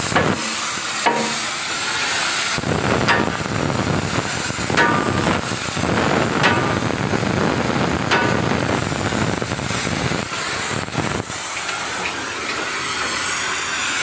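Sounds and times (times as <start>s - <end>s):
loud hissing: 0.0s - 14.0s
sharp knocks: 0.1s - 1.5s, 3.1s - 3.4s, 4.8s - 5.4s, 6.4s - 6.8s, 8.1s - 8.6s.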